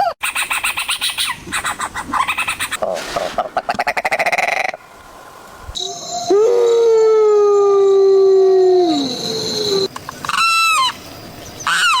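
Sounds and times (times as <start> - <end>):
animal howl-like call: 5.8 - 9.9.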